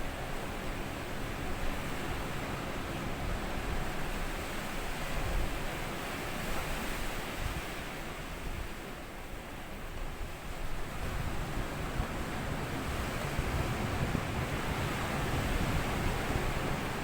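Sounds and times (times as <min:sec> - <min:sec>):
wind on microphone: 0:10.7 - 0:17.0
waves washing onto sandy beach: 0:10.8 - 0:17.0.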